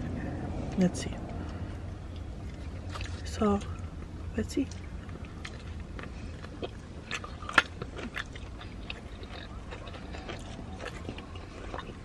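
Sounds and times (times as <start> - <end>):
chewing crispy food: 1.4 - 12.0.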